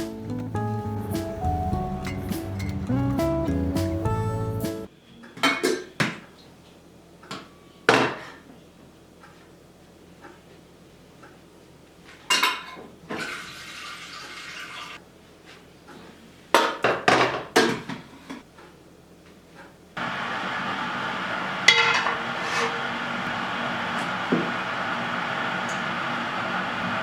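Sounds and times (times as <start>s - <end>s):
dishes and utensils clinking: 5.3s - 6.2s.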